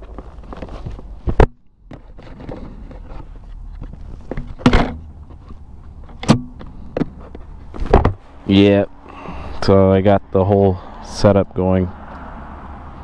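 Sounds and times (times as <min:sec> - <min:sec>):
sharp handling knocks: 0:03.8 - 0:08.3.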